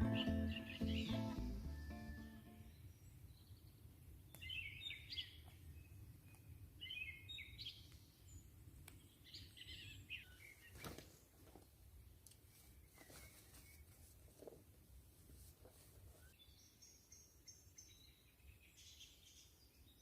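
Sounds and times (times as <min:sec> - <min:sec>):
faint songbird chirping: 0:00.0 - 0:14.3, 0:16.0 - 0:20.0.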